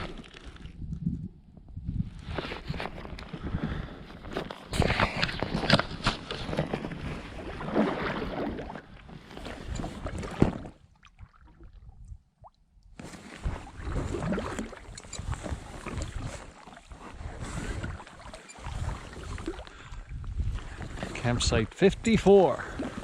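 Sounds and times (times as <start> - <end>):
paddle strokes splashing water: 4.8 - 11.6, 13.0 - 21.2, 22.2 - 23.0.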